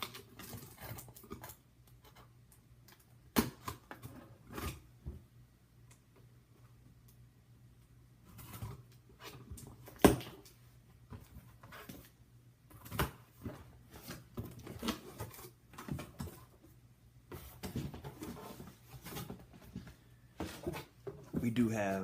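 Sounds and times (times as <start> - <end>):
cardboard box rustling and scraping: 17.3 - 21.0.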